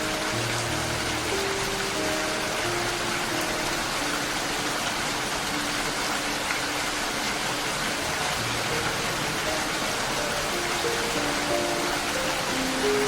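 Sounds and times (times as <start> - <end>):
soft background music: 0.0 - 13.0
steady rain: 0.0 - 13.0.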